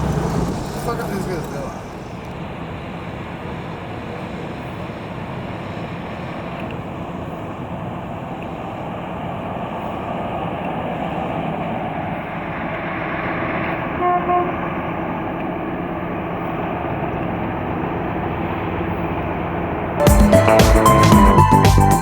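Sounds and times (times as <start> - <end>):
car road and wind noise: 0.0 - 20.0
car horn beeps: 14.0 - 14.7.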